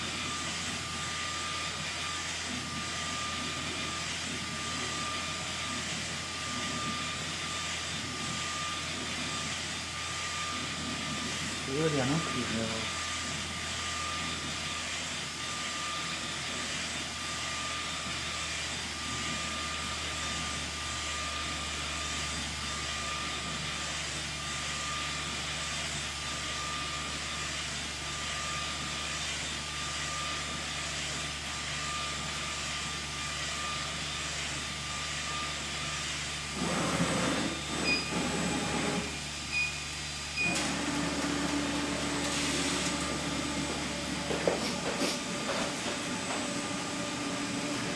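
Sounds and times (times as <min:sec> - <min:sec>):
printer whirring and hissing: 0:00.0 - 0:47.9
short high beeps: 0:39.5 - 0:40.5.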